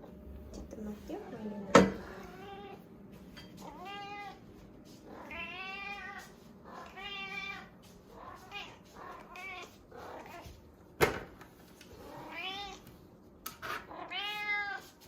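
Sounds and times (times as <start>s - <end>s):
cat meowing: 3.6s - 4.4s, 5.1s - 10.4s, 12.1s - 12.8s, 13.9s - 14.8s.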